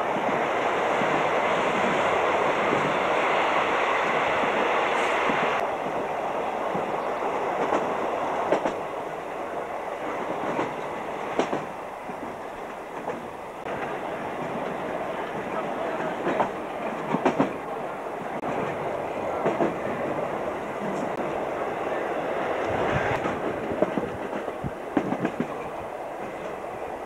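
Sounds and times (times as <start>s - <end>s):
train rolling on track: 0.0s - 27.0s
wheels clicking over rail joints: 10.2s - 17.6s, 22.6s - 26.6s.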